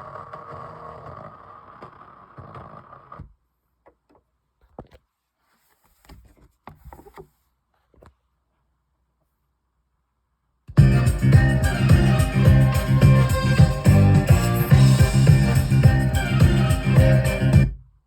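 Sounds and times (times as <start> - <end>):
noisy vinyl record rumble: 10.8 - 17.8.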